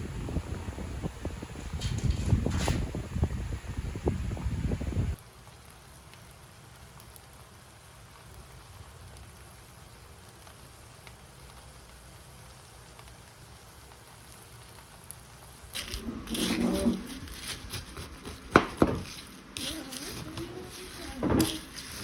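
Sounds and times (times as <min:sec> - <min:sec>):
light hiss: 0:05.1 - 0:22.0.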